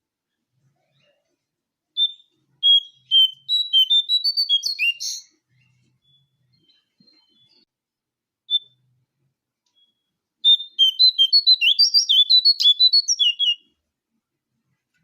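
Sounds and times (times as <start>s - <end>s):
small songbird chirping and whistling: 2.0s - 7.7s, 8.5s - 8.9s, 9.7s - 13.8s.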